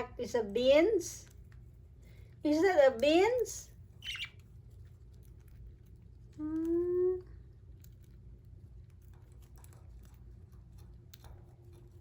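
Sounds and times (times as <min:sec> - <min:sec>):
person humming: 0:06.4 - 0:07.3.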